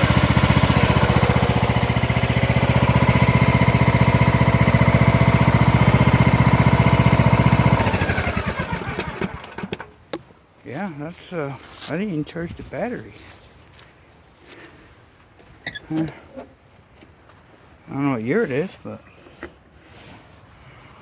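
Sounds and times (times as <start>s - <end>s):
riding mower engine idling: 0.0s - 10.1s.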